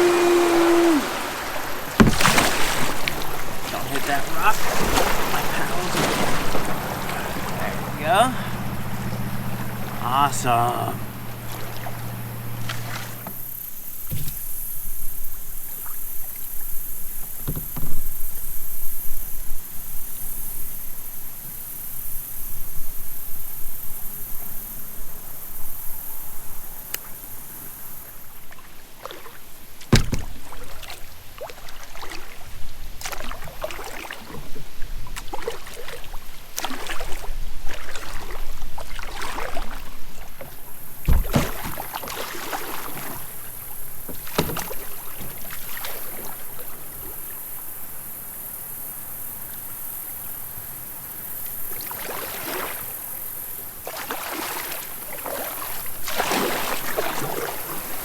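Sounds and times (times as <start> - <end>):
paddle strokes splashing water: 0.0 - 20.4, 26.8 - 50.0, 50.6 - 58.0
sharp knocks: 2.0 - 3.2, 29.9 - 30.3, 41.1 - 41.8.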